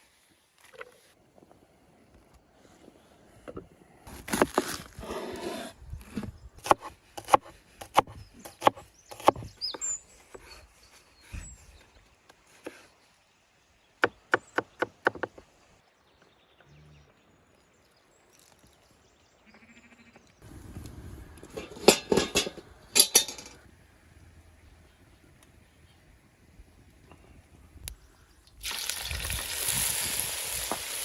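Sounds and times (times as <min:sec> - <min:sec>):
knife scraping board: 0:04.3 - 0:06.2.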